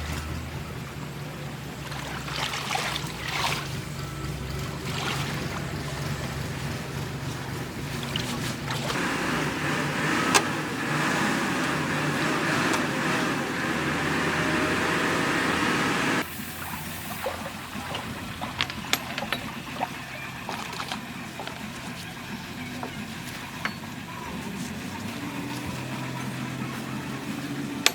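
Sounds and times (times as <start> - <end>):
backhoe diesel engine running: 0.0 - 27.9
rushing water: 0.0 - 27.9.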